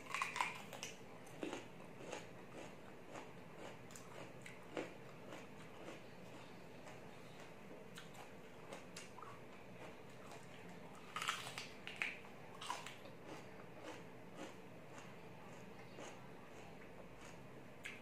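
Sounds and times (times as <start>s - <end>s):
crisp crunches of bell pepper: 0.0s - 6.4s, 11.0s - 14.6s
faint chewing clicks: 0.1s - 18.0s.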